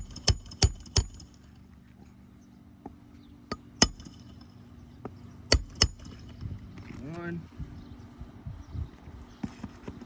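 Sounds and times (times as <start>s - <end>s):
hammer striking nail: 0.0s - 1.3s, 3.5s - 4.4s, 5.5s - 6.4s.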